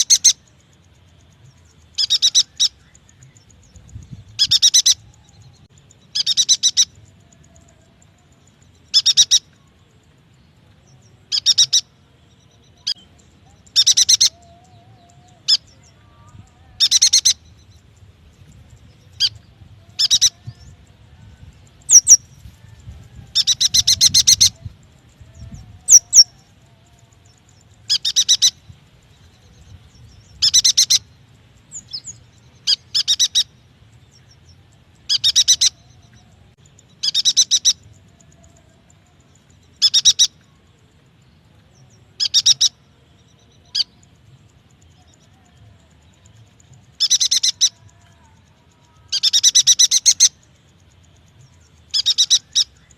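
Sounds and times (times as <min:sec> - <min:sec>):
bird chattering trills: 0:00.0 - 0:00.5, 0:01.2 - 0:05.3, 0:06.0 - 0:09.6, 0:11.3 - 0:11.9, 0:12.8 - 0:20.9, 0:21.7 - 0:26.4, 0:27.2 - 0:28.7, 0:30.2 - 0:31.1, 0:31.8 - 0:33.6, 0:35.0 - 0:36.2, 0:36.8 - 0:40.4, 0:42.2 - 0:42.8, 0:46.8 - 0:51.1, 0:51.8 - 0:52.9
high bird chirps and whistles: 0:25.4 - 0:26.4, 0:35.1 - 0:35.8, 0:51.9 - 0:52.9.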